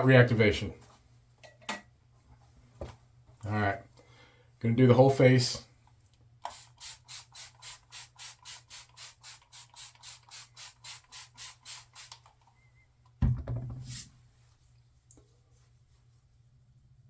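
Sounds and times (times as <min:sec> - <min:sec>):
loud thump: 0:13.2 - 0:13.9.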